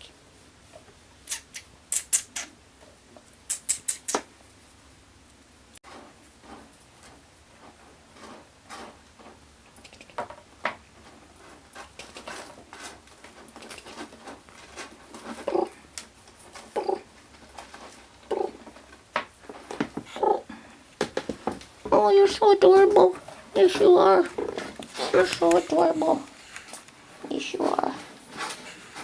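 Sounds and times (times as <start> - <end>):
kittens playing on hard floor: 5.9 - 20.2.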